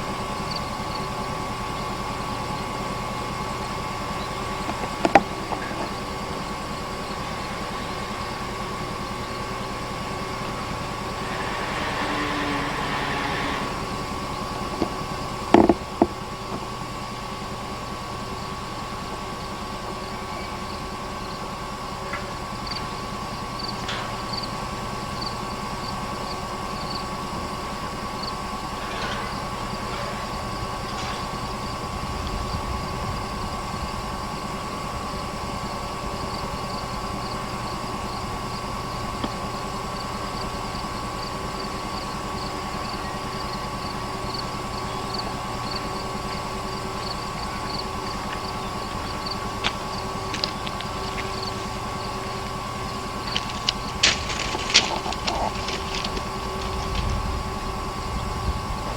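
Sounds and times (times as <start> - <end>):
diesel locomotive engine idling: 0.0 - 58.9
faint high ticking: 1.8 - 17.3, 43.8 - 58.2.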